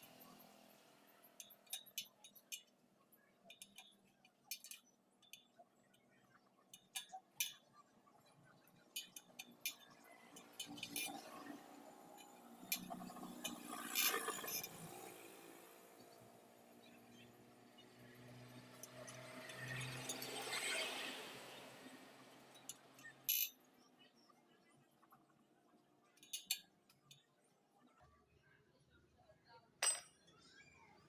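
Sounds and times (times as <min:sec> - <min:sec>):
metallic clinks of wire spokes: 0:01.3 - 0:02.9, 0:03.5 - 0:15.3, 0:18.7 - 0:20.9, 0:22.5 - 0:23.5, 0:26.2 - 0:27.3, 0:29.8 - 0:30.5.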